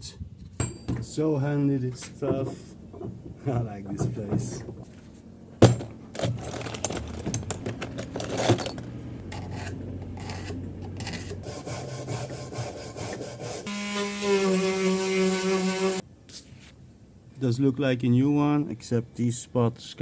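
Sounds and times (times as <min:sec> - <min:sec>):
abrasive rubbing on wood: 0:02.0 - 0:05.2.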